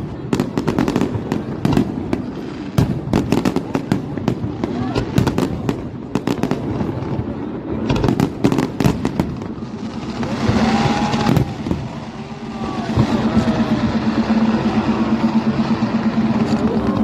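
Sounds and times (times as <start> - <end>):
fireworks bangs and crackles: 0.0 - 17.0
whistling fireworks: 0.0 - 17.0
steady low hum: 11.5 - 17.0.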